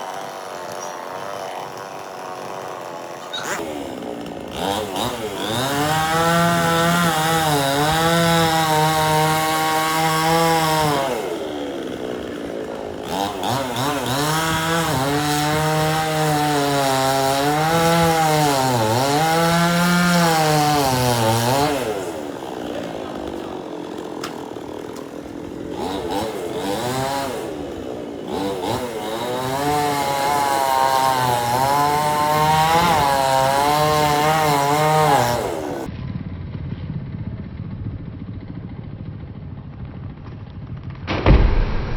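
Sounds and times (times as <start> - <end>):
chainsaw cutting wood: 0.0 - 35.9
chainsaw idling: 0.0 - 35.9.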